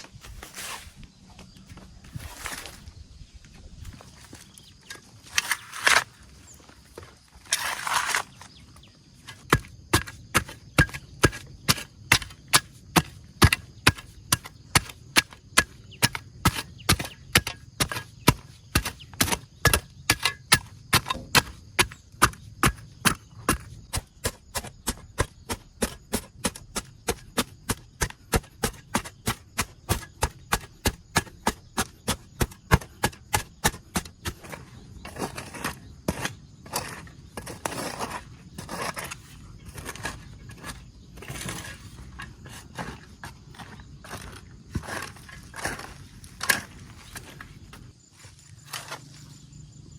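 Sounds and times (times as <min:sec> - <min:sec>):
rustling: 0:00.0 - 0:03.0
blade chopping wood: 0:09.3 - 0:39.2.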